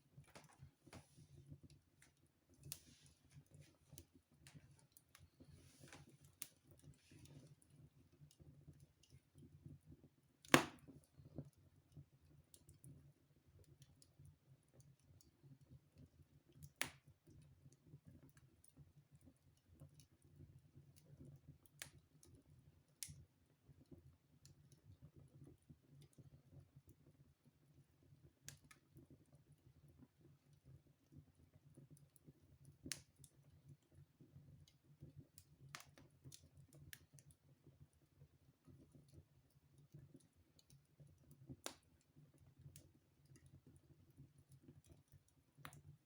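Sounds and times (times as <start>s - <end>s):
wood fire crackling: 0.0s - 14.2s, 31.9s - 46.0s.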